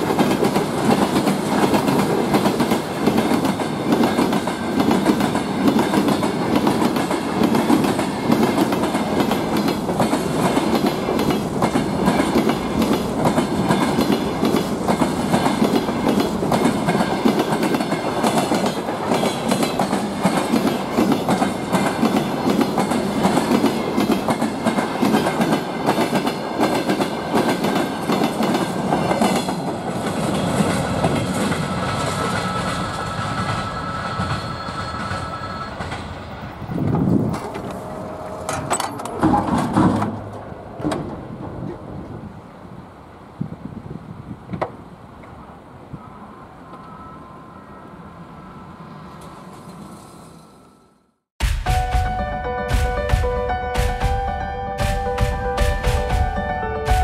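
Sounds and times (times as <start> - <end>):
train wheels clattering: 0.0 - 41.6
high squeal: 31.5 - 36.3.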